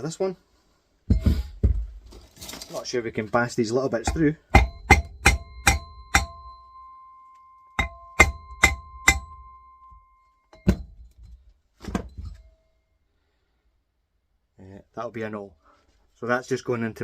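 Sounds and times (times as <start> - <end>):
metal strikes on steel shell: 4.0 - 11.2.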